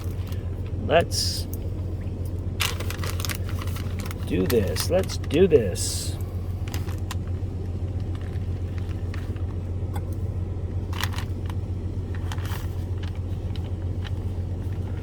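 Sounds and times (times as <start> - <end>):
low hum: 0.0 - 15.0
pouch crinkling: 2.6 - 5.4, 7.9 - 9.5.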